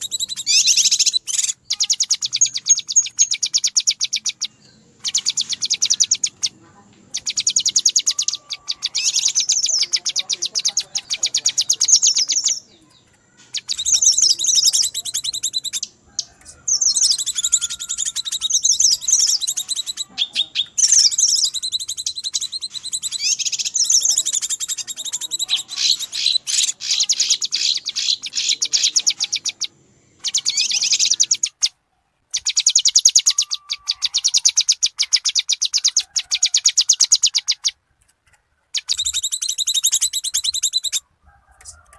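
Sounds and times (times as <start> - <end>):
bird calls with sharp chirps: 0.0 - 37.8, 38.7 - 41.9.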